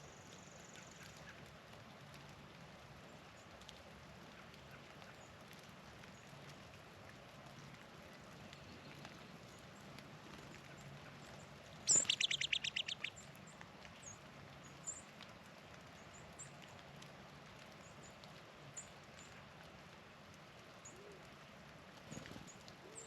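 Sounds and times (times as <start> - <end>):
songbird trill: 11.8 - 13.3.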